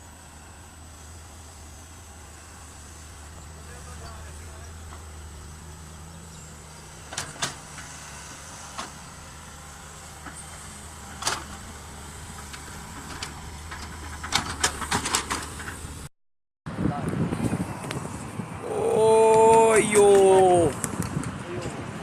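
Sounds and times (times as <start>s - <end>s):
diesel engine running at low revs: 0.0s - 16.1s.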